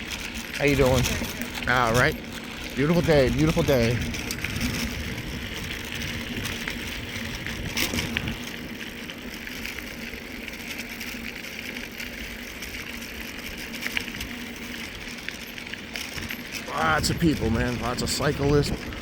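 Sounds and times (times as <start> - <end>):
bike tyres rolling on trail: 0.0 - 19.0.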